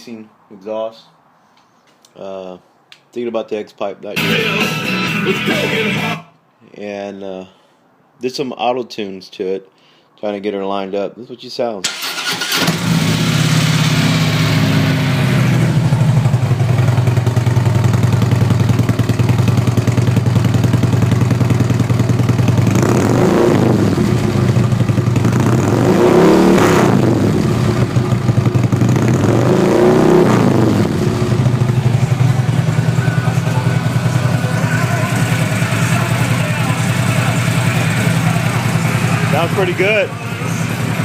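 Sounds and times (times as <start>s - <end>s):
motorcycle engine idling and revving: 12.4s - 41.0s.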